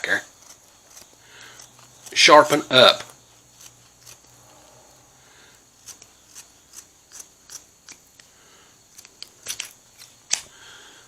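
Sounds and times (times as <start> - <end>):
shears snipping through cloth: 0.0 - 4.4, 5.8 - 8.1.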